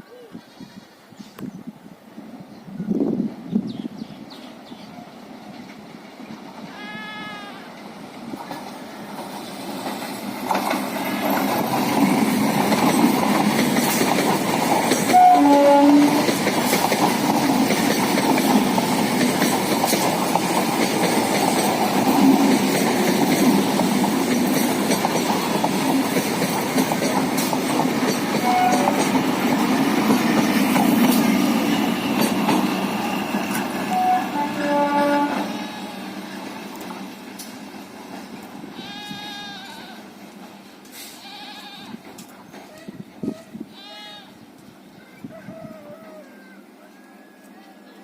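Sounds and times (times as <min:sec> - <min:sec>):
train rumble and wheel clatter: 0:00.4 - 0:48.0
train horn blast: 0:15.1 - 0:16.3, 0:28.4 - 0:29.2, 0:33.8 - 0:36.2.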